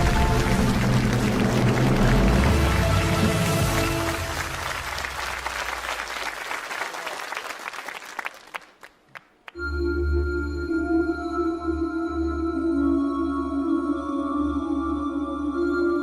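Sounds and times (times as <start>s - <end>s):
audience applause: 0.0s - 9.6s.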